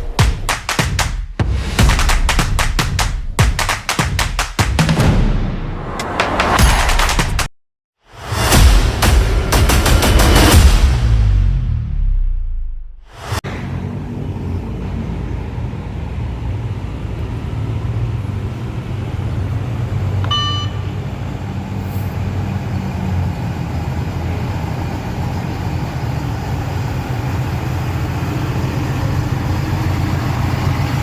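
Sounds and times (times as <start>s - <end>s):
truck engine droning: 13.4s - 31.0s
short beep: 20.3s - 21.0s.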